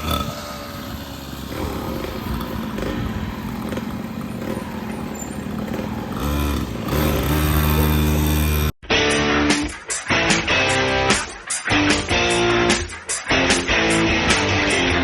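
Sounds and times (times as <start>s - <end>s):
dirt bike engine running: 0.0s - 8.7s.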